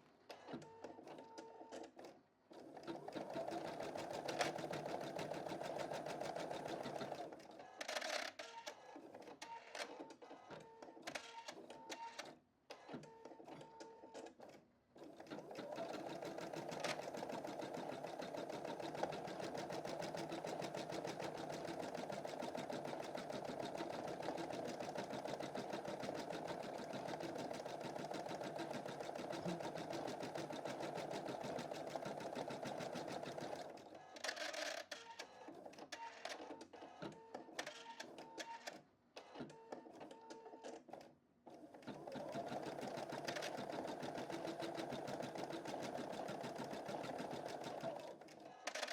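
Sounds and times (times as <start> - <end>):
embroidery machine stitching: 2.7 - 7.4, 15.0 - 33.8, 41.8 - 48.9.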